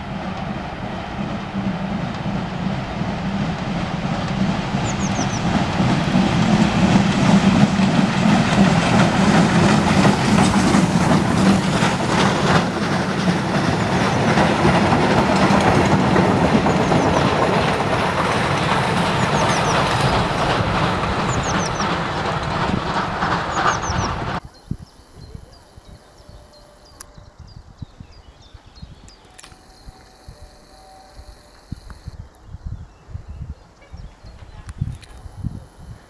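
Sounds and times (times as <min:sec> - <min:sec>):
train wheels clattering: 0:00.3 - 0:24.4.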